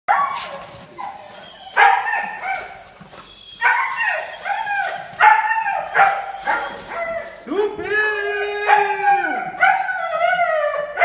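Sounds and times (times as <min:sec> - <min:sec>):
puppy yapping: 0:00.1 - 0:07.4.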